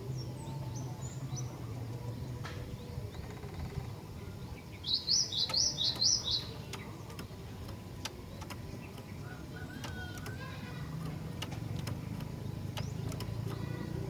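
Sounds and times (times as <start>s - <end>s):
faint clicks: 5.3s - 14.0s.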